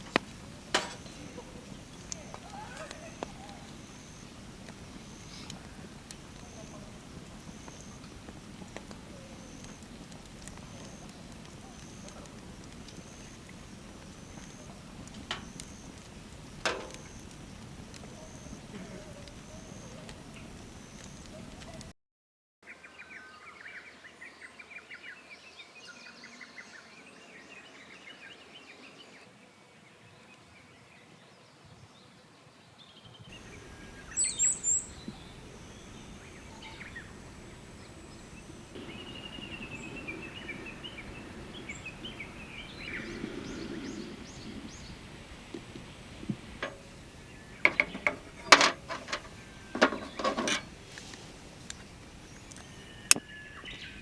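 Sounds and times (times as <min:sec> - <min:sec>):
birds chirping and singing: 0:33.3 - 0:45.0
sharp knocks and clacks: 0:47.6 - 0:50.7.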